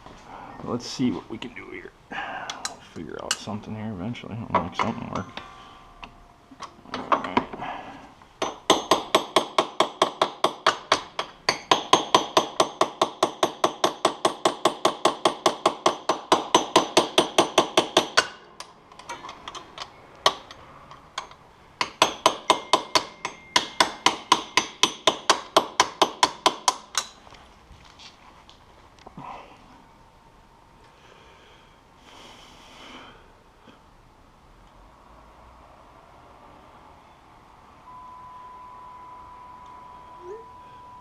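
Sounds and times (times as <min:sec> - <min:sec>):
hammer tapping on metal: 0:08.4 - 0:27.2.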